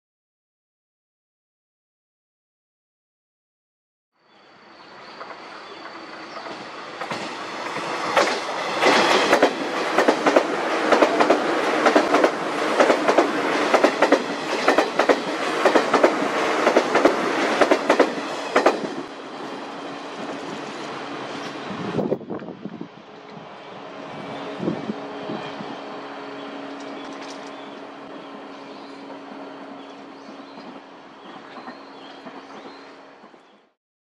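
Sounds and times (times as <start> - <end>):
train wheels clattering: 5.2 - 19.1.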